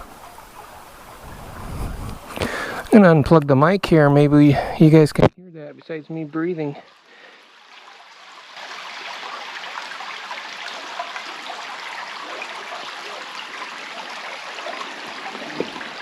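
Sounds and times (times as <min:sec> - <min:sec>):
creek water babbling: 0:00.0 - 0:16.0.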